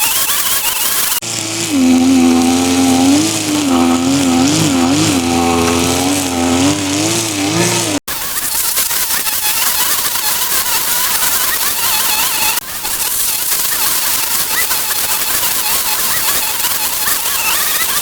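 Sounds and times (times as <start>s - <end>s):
motor with wavering pitch: 1.2s - 8.0s.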